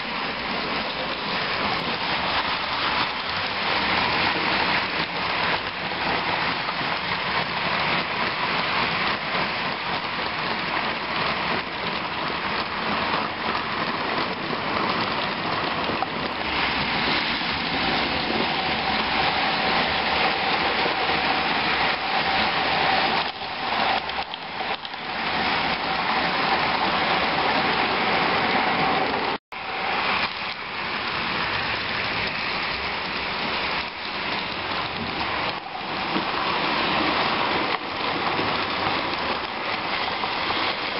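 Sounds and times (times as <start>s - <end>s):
model train wheels on rail: 0.0s - 40.9s.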